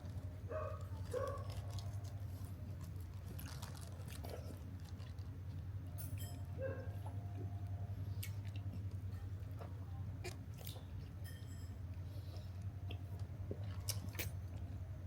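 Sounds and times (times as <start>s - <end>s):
steady low hum: 0.0s - 15.0s
person chewing: 0.8s - 5.6s, 8.1s - 9.0s, 12.2s - 14.8s.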